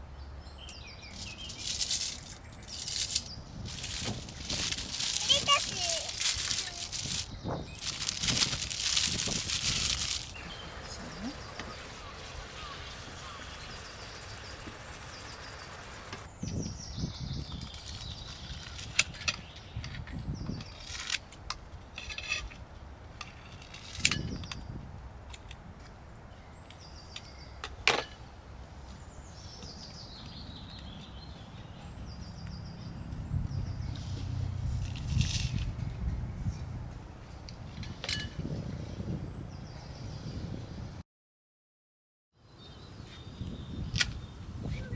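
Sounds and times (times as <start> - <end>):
crinkly rustling: 1.1 - 10.5.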